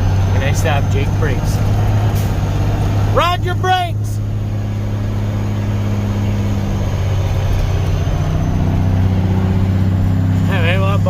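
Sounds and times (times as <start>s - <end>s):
truck diesel engine droning: 0.0s - 11.0s.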